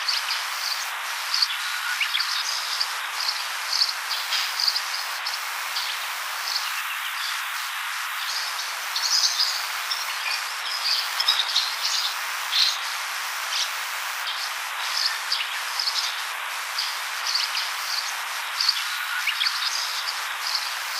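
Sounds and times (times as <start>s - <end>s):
small birds chirping: 0.0s - 16.2s
tape hiss: 0.0s - 20.9s.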